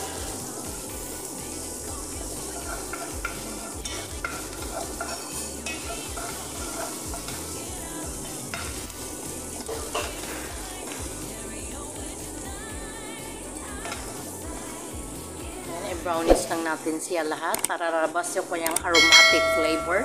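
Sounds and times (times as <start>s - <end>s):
onions sizzling in a pan: 0.0s - 17.1s, 18.9s - 20.0s
wooden spatula scraping a pan: 2.5s - 7.9s.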